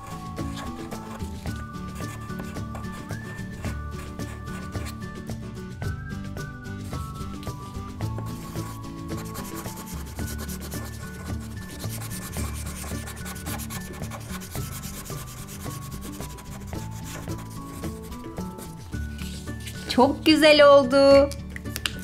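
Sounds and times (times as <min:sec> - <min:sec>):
marker scratching on paper: 0:00.0 - 0:05.0, 0:08.2 - 0:19.9.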